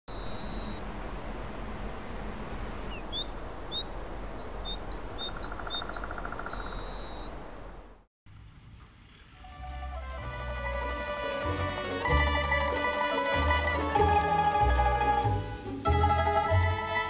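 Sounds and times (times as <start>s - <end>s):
small birds singing: 0.1s - 0.8s, 2.5s - 7.4s.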